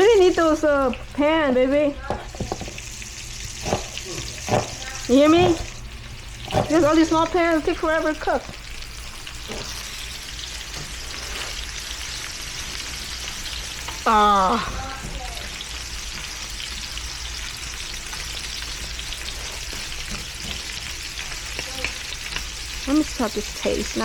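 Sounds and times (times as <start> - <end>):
meat sizzling in a pan: 0.0 - 24.0
woman saying ah: 14.1 - 15.4, 22.9 - 24.0.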